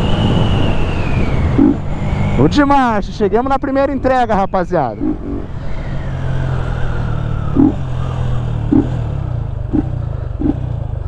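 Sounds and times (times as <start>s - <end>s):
short low engine blips: 1.2s - 2.2s
motorcycle engine running: 1.5s - 2.5s, 5.0s - 11.0s.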